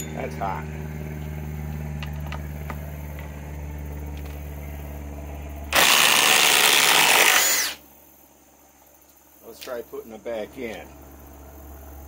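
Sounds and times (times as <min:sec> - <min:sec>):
steady low hum: 0:00.0 - 0:12.0
impact driver hammering: 0:05.7 - 0:07.8.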